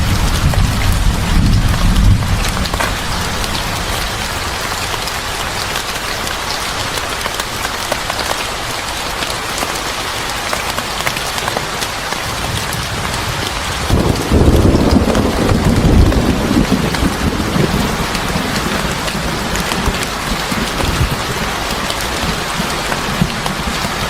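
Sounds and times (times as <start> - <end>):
deep low rumble: 0.0 - 4.5
heavy rain: 0.0 - 24.0.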